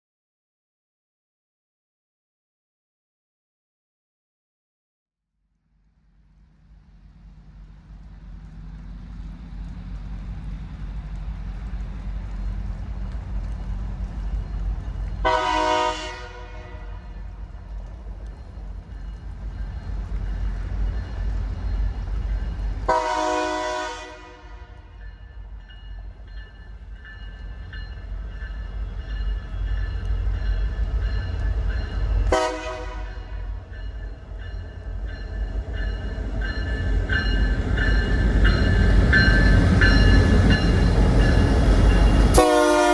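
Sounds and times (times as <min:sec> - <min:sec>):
train rumbling: 0:05.7 - 0:42.9
train horn: 0:15.2 - 0:17.3, 0:22.9 - 0:25.0, 0:32.2 - 0:33.6, 0:42.3 - 0:42.9.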